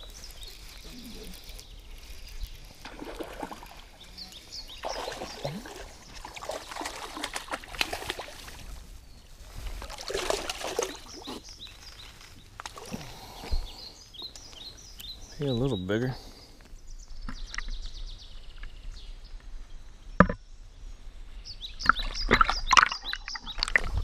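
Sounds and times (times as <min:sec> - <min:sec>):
water splashing and trickling: 0:00.0 - 0:13.4, 0:21.8 - 0:24.0.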